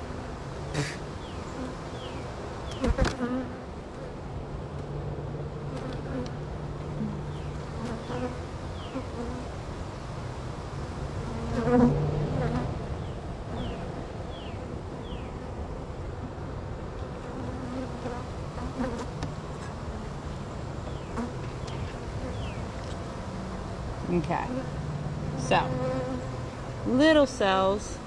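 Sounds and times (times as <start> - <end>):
honey bees buzzing: 0.0 - 4.6, 5.2 - 28.0.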